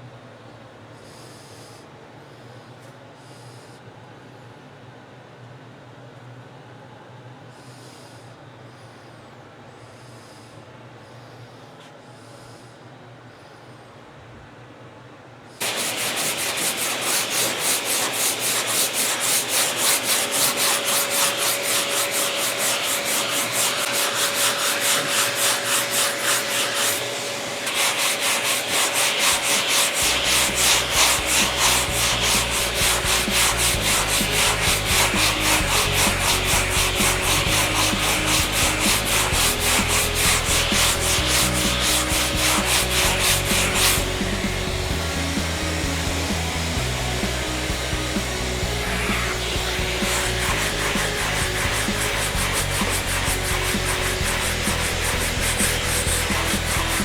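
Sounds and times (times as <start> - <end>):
sandpaper rasping on a panel: 15.6 - 44.8, 48.5 - 57.0.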